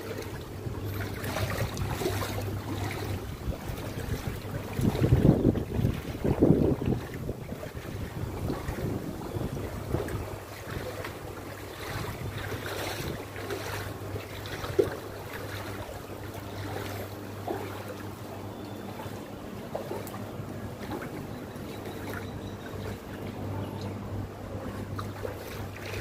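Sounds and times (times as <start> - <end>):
low engine hum: 0.0 - 26.0
water noise: 0.0 - 26.0
wind: 0.0 - 26.0.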